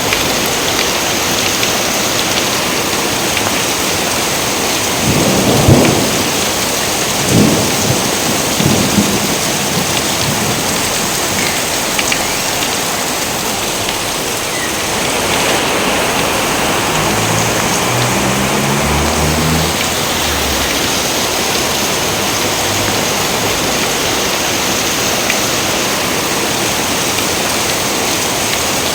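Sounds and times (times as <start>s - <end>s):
heavy rain: 0.0s - 28.9s
thunder cracks and rolls: 4.9s - 12.7s, 14.9s - 23.8s.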